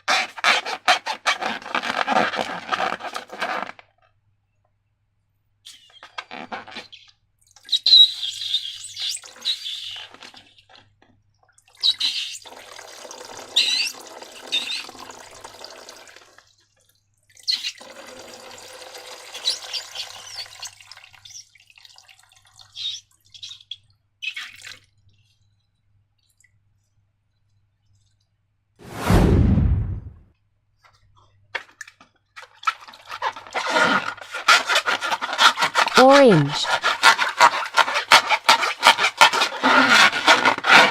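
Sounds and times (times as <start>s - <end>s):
slime squelching and pouring: 31.6s - 40.9s.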